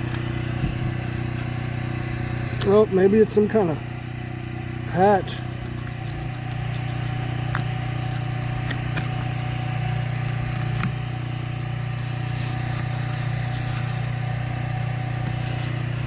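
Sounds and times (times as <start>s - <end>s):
gas engine running: 0.0s - 16.0s.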